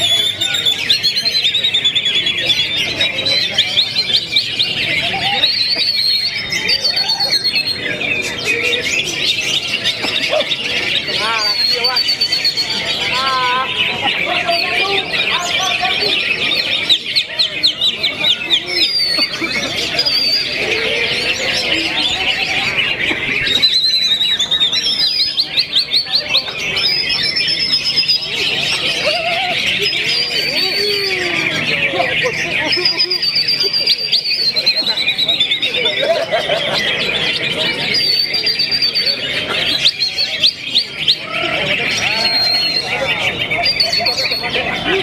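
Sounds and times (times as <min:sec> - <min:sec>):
bird singing whistled chattering notes: 0:00.0 - 0:36.0, 0:36.9 - 0:45.0
other birds singing: 0:00.0 - 0:45.0.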